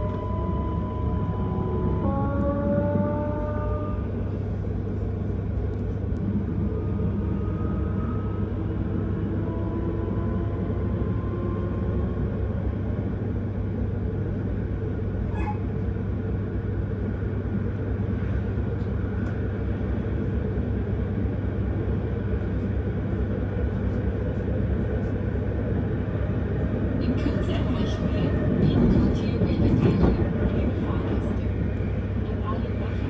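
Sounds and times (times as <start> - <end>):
train wheels rumbling on rails: 0.0 - 33.0
brief squeak: 15.3 - 15.6.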